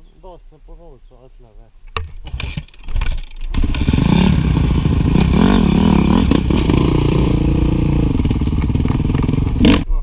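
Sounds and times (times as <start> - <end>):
motorcycle engine revving: 3.5 - 9.9.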